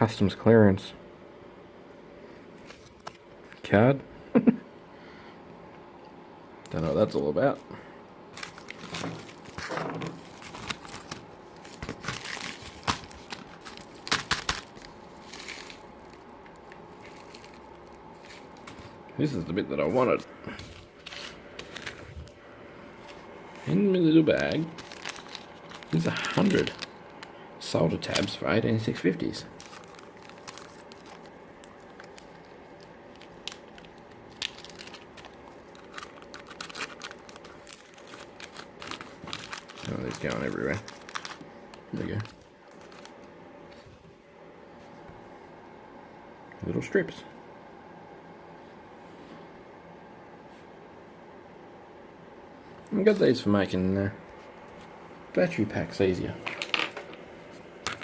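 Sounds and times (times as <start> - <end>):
packaging crinkling and rustling: 8.3 - 19.0, 20.0 - 44.0, 56.4 - 58.0
sharp packaging crackles: 8.3 - 19.0, 24.2 - 27.4, 29.2 - 43.3.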